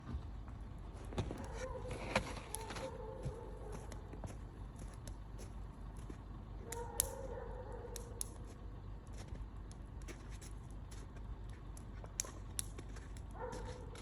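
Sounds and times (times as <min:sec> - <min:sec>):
low steady rumble: 0:00.0 - 0:14.0
campfire crackling and popping: 0:00.8 - 0:02.9, 0:06.6 - 0:07.3, 0:07.9 - 0:14.0.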